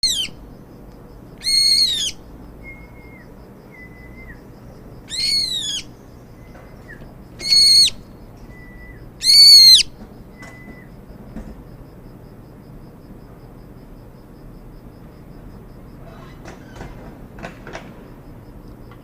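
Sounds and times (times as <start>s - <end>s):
bird high piercing calls: 0.0s - 0.4s, 1.4s - 11.0s
bird soft whistled notes: 1.5s - 4.4s.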